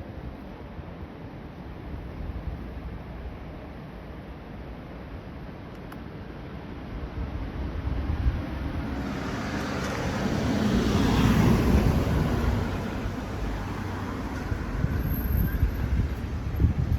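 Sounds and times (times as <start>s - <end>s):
road vehicle passing: 8.4s - 16.9s.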